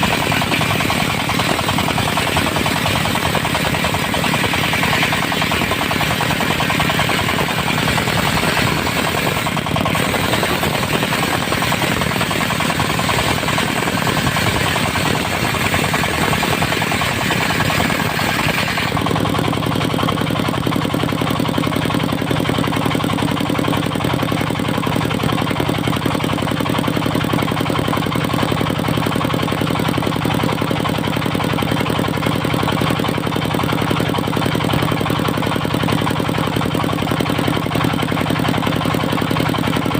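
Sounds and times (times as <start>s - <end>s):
circular saw cutting wood: 0.0s - 19.0s
knocking diesel engine: 0.0s - 39.9s.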